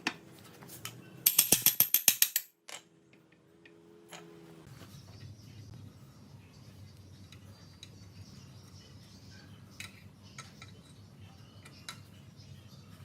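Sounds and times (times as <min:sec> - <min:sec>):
small metal parts clinking: 0:01.2 - 0:02.9.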